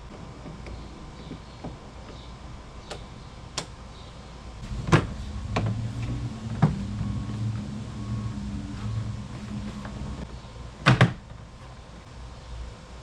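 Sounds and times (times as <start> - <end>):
low hum: 4.6 - 10.3.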